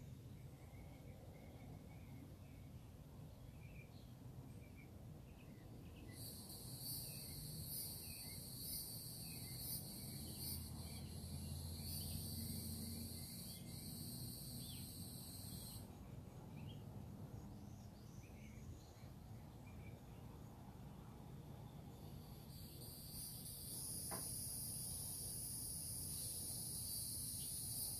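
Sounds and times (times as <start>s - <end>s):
faint bird chirps: 0.0s - 20.5s
high-pitched insect buzz: 6.2s - 15.8s, 22.4s - 27.9s.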